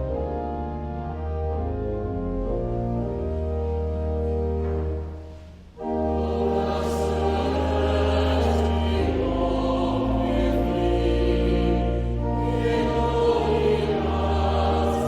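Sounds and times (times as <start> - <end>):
church organ: 0.0 - 15.0
choir and congregation singing: 5.8 - 15.0.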